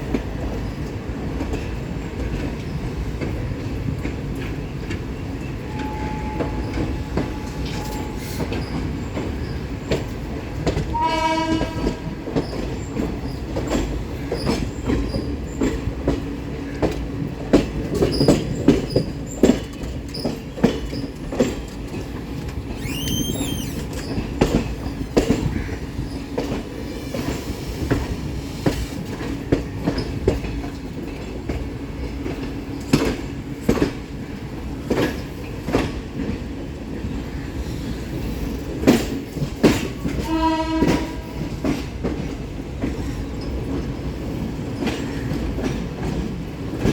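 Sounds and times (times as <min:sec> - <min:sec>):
train rumble: 0:00.0 - 0:46.9
train wheels clattering over rail joints: 0:00.1 - 0:37.2, 0:37.8 - 0:46.9
train horn blast: 0:05.7 - 0:08.5, 0:10.9 - 0:12.2, 0:40.2 - 0:41.6
brief high squeal: 0:22.8 - 0:24.2.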